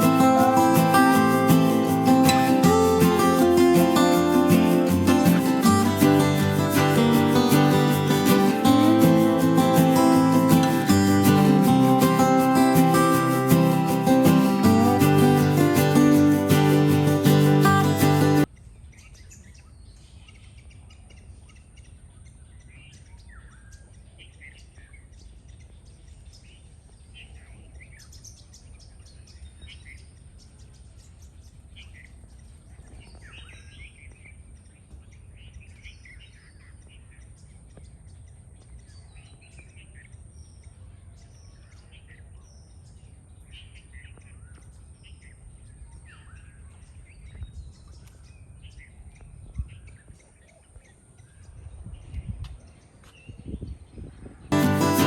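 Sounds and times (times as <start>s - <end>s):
high-pitched drone: 0.0s - 18.4s
birds chirping: 0.0s - 19.6s.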